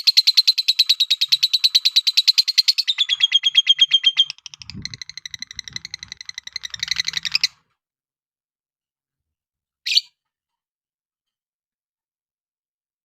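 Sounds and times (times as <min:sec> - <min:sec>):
lovebird chattering trill: 0:00.0 - 0:07.6.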